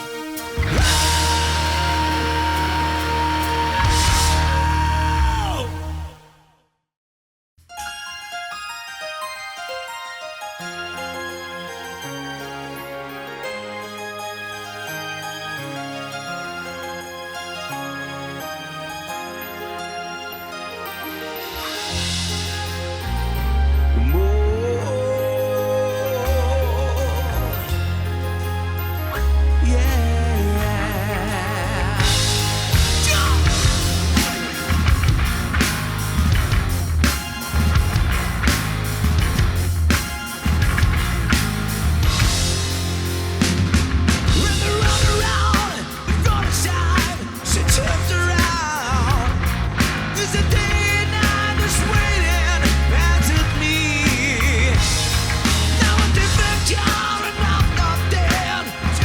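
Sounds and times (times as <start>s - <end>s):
drum kit beat: 0.0s - 5.8s, 31.9s - 59.0s
rock band playing: 0.0s - 6.1s, 21.2s - 25.4s, 26.5s - 59.0s.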